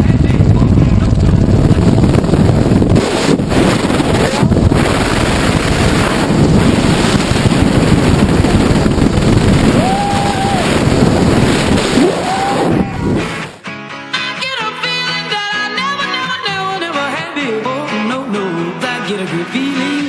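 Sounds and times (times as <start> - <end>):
wind rushing on microphone: 0.0 - 13.6
rising and falling tone: 9.4 - 13.5.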